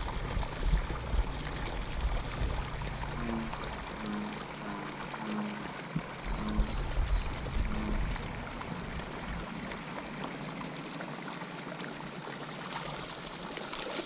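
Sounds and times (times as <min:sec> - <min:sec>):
low rumbling: 0:00.0 - 0:10.2
water pouring into pond: 0:00.0 - 0:14.0.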